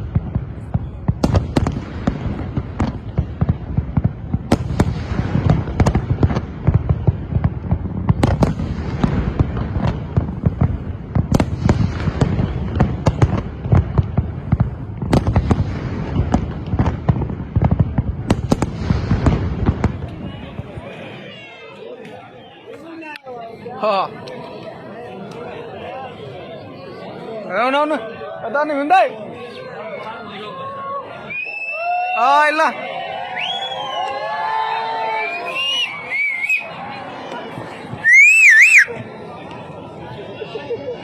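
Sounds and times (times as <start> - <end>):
sharp firework cracks: 0.0 - 20.8
loud firework bangs: 0.0 - 20.9.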